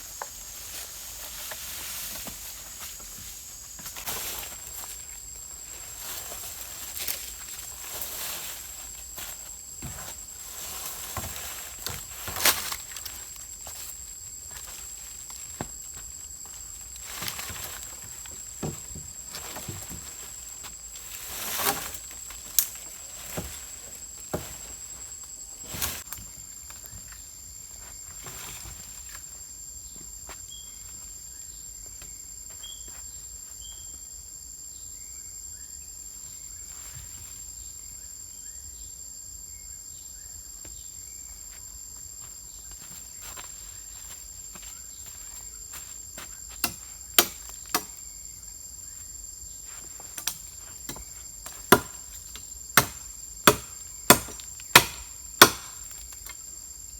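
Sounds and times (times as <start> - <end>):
rustles: 0.0 - 34.0.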